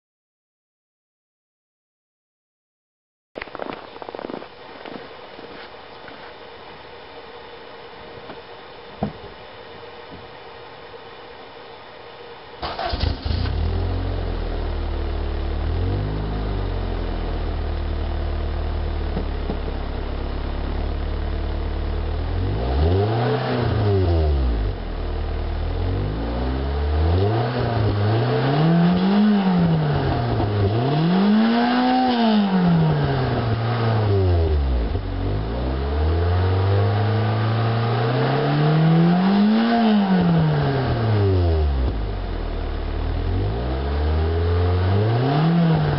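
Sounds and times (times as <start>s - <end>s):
car engine starting and revving: 12.6s - 45.9s.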